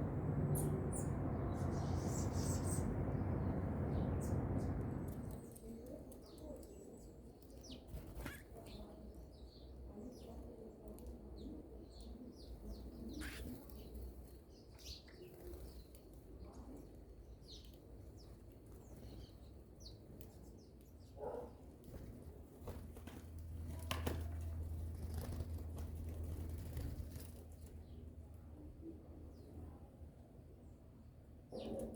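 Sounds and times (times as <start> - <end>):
low rumble: 0.0 - 5.5
small birds chirping: 0.0 - 29.8, 31.5 - 31.9
wing flutters: 7.8 - 8.8, 21.9 - 27.8.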